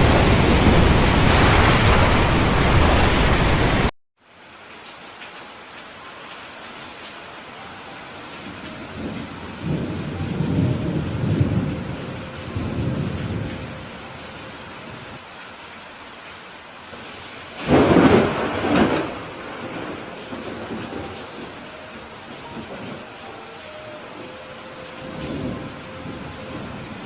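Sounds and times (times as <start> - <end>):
thunder rumbling: 0.0 - 3.9, 8.9 - 14.0, 17.6 - 23.1, 25.0 - 27.0
thunderclap cracking: 0.0 - 3.9, 17.6 - 21.5
steady rain: 0.0 - 27.0.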